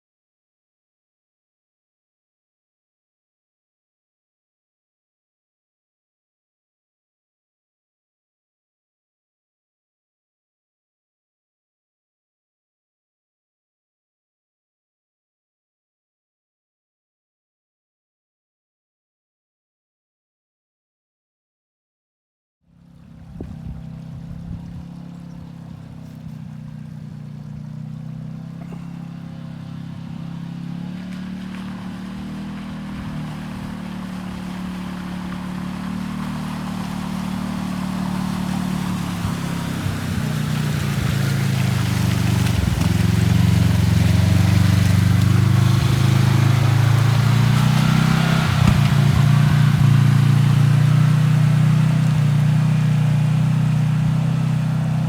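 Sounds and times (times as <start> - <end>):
vehicle engine droning: 22.7 - 55.0
road and wind noise: 22.8 - 55.0.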